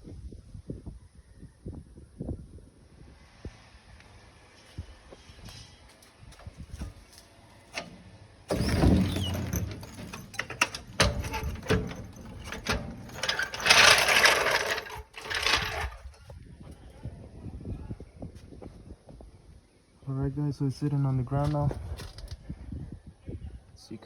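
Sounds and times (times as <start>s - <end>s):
metallic clanks and knocks: 7.7s - 16.2s
machine running in bursts: 8.5s - 15.8s.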